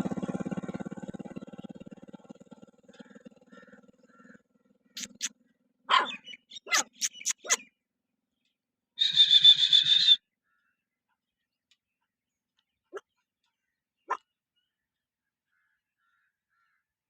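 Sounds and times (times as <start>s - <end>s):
motor hum: 0.0s - 6.0s
high-pitched pulsing dog cry: 5.9s - 7.6s
dogs barking and yelping: 5.9s - 7.7s.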